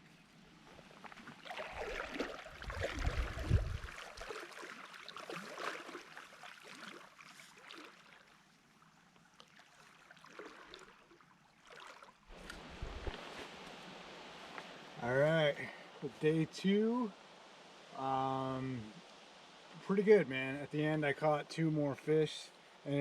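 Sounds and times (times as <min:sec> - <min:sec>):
stream gurgling: 0:00.5 - 0:23.0
low microphone rumble: 0:02.6 - 0:03.9, 0:12.4 - 0:17.1.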